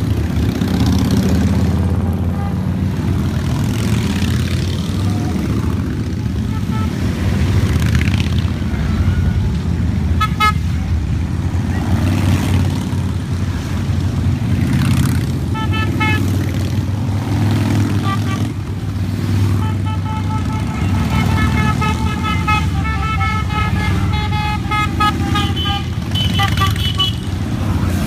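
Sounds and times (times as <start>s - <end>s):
motorcycles passing: 0.0s - 28.0s
horns beeping: 5.0s - 7.6s, 8.6s - 11.0s, 15.4s - 27.6s.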